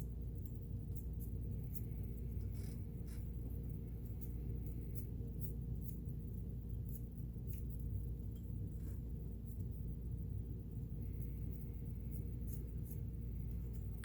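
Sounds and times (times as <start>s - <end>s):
steady low hum: 0.0s - 14.0s
scratchy rub: 1.6s - 6.1s.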